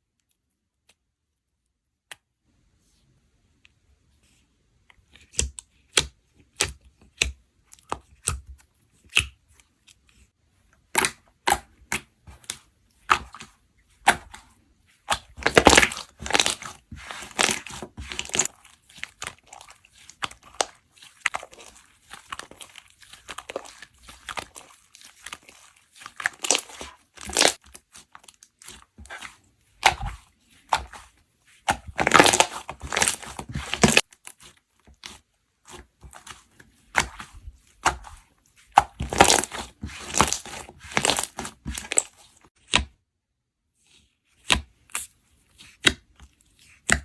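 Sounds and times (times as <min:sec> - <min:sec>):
crisp material snapping and crackling: 0:15.1 - 0:31.0, 0:31.7 - 0:35.2, 0:36.0 - 0:42.6.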